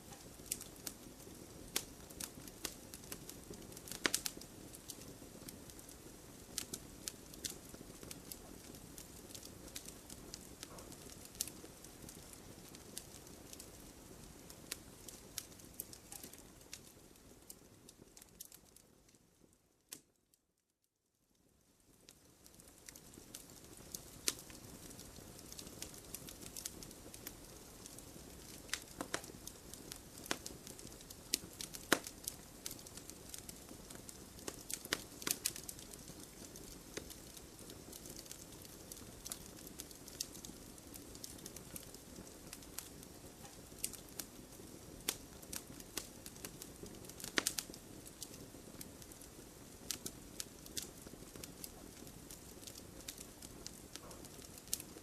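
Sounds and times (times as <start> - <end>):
wood fire crackling: 0.0 - 20.3, 21.3 - 55.0.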